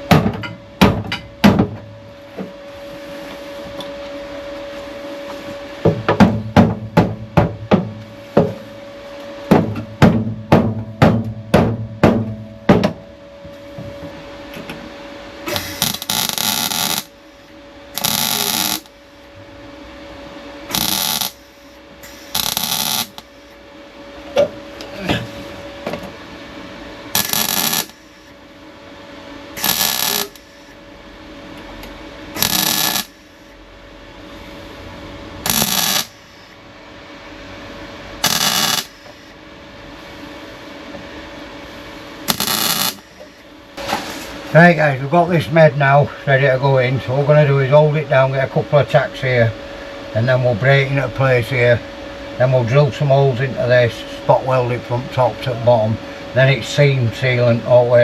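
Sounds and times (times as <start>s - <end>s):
harsh hissing bursts: 15.5s - 17.4s, 18.0s - 18.9s, 20.7s - 23.3s, 27.1s - 28.3s, 29.6s - 30.7s, 32.4s - 33.4s, 35.4s - 36.4s, 38.2s - 39.3s, 42.2s - 44.6s.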